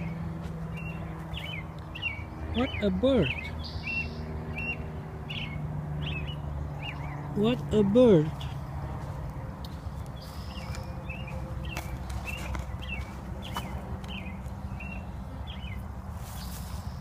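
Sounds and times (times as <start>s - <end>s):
footsteps on wood chips: 0.0s - 1.6s, 8.2s - 14.6s, 16.1s - 17.0s.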